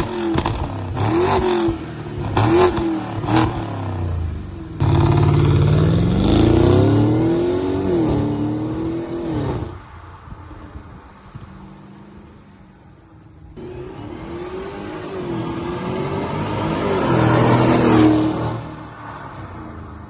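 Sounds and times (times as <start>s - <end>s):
car engine revving: 0.0s - 9.8s, 13.6s - 18.8s.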